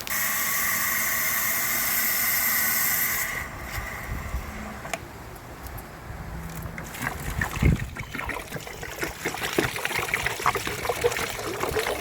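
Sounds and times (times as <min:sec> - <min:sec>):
hissing spray: 0:00.0 - 0:04.0.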